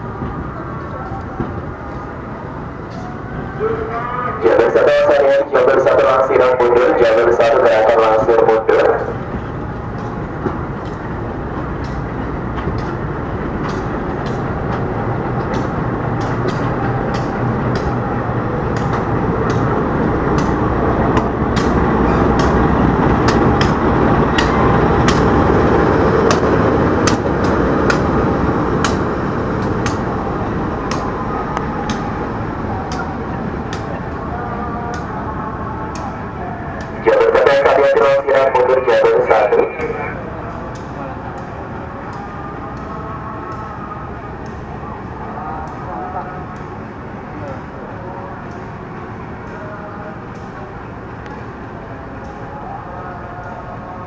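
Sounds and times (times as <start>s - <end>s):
train rumbling on tracks: 0.0s - 54.0s
wheels clicking over rail joints: 9.0s - 35.2s.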